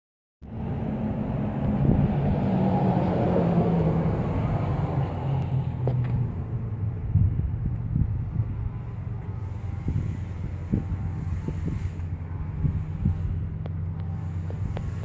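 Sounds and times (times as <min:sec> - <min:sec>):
car engine idling: 0:03.8 - 0:15.0.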